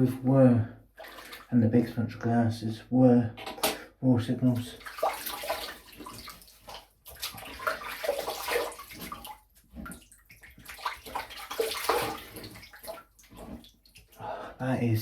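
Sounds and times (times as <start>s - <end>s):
water splashing: 1.0s - 1.9s, 4.4s - 14.2s.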